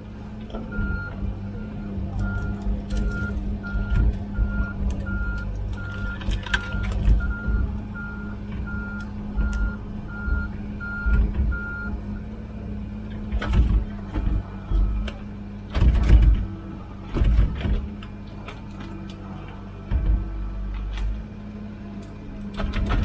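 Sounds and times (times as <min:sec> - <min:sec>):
diesel engine running: 0:00.0 - 0:23.0
travel alarm beeping: 0:01.8 - 0:12.0.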